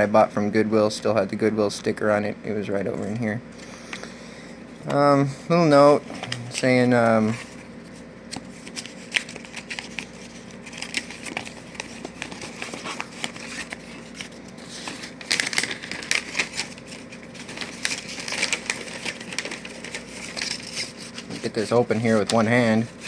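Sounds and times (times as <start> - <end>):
packaging crinkling: 5.0 - 23.0.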